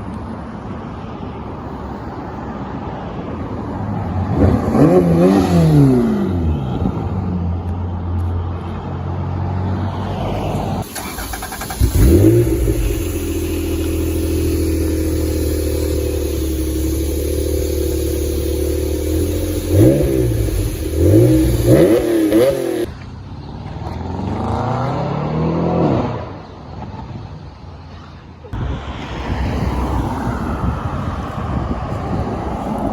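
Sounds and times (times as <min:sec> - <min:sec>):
sports car engine revving: 0:11.2 - 0:22.9.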